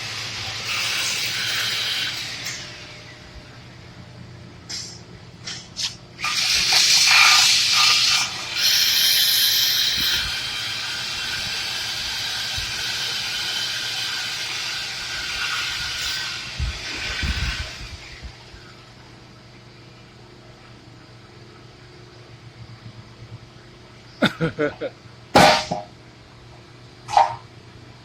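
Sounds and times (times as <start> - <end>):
loud steady hiss: 0.0 - 3.5, 4.7 - 18.8
short sharp hisses: 4.7 - 6.0.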